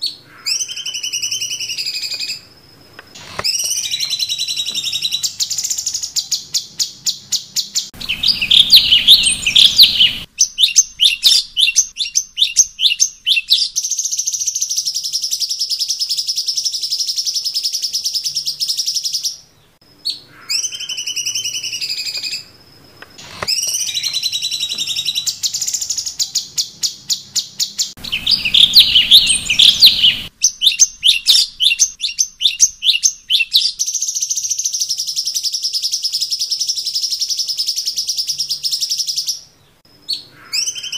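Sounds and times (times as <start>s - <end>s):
bird singing loudly: 0.0s - 2.5s, 3.2s - 22.6s, 23.2s - 40.9s.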